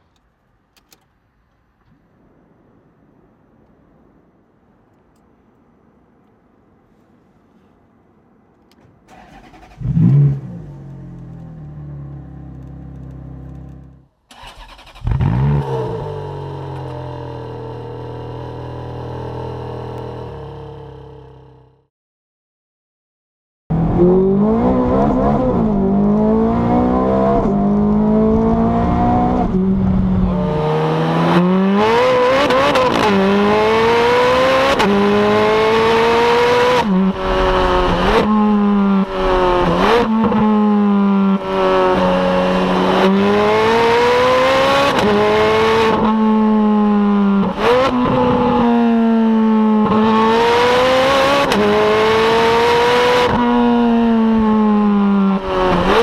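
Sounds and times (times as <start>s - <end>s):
car engine accelerating hard: 23.7s - 56.0s.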